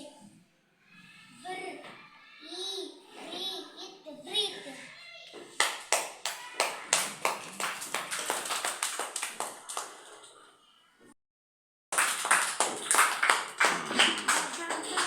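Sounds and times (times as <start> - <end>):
group clapping in time: 5.6 - 10.3, 11.9 - 15.0.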